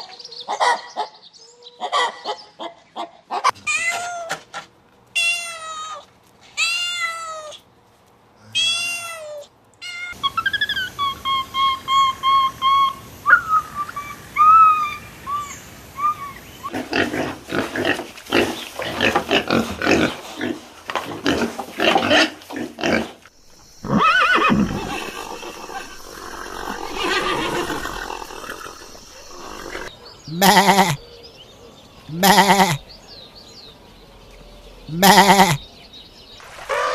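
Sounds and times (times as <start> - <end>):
rising and falling animal call: 8.6 - 16.7, 23.4 - 31.1, 32.1 - 32.8, 34.9 - 35.6
high peeping animal calls: 9.9 - 16.8, 23.4 - 36.9
rapid harsh animal calls: 23.4 - 31.1, 32.1 - 32.8, 34.9 - 35.6.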